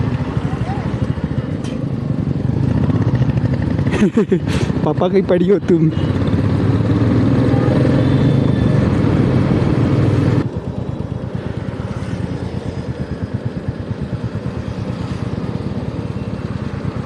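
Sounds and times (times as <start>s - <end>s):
motorcycle engine running: 0.0s - 17.0s
road rush: 0.0s - 17.0s.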